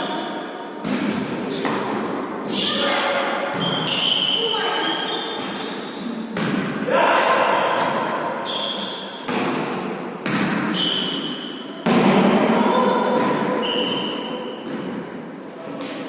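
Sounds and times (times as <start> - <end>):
volleyball hits with echo: 0.8 - 2.3, 3.4 - 4.3, 5.3 - 16.0
shoe squeaks on court: 1.0 - 2.8, 3.6 - 6.2, 8.4 - 9.9, 10.7 - 11.4.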